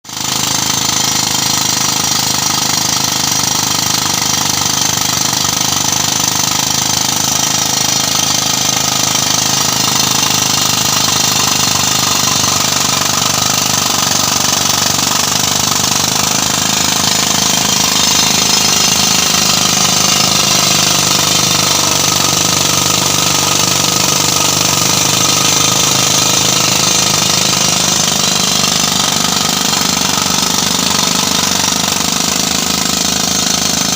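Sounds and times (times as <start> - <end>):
drill running: 0.1 - 33.9.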